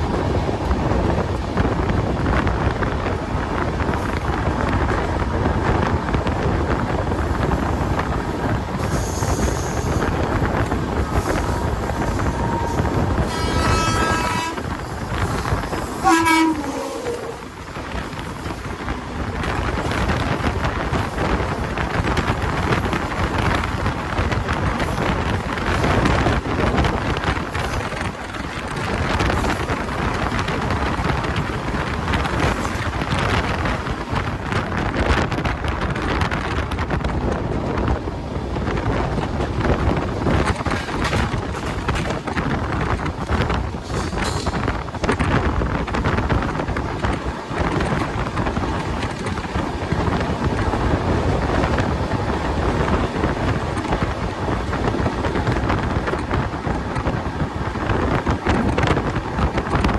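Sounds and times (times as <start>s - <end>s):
train rumbling past: 0.0s - 59.9s
train horn: 11.2s - 14.8s, 16.0s - 17.5s.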